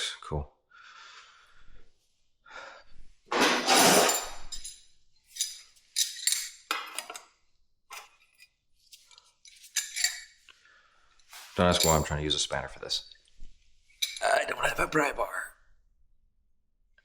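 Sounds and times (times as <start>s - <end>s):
metal tools clinking on metal: 3.4s - 7.3s, 7.9s - 10.4s, 11.4s - 12.2s, 13.9s - 14.4s.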